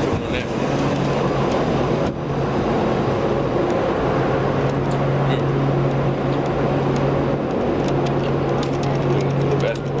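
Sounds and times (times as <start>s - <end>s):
constant rushing noise: 0.0s - 10.0s
loud mechanical hum: 0.0s - 10.0s.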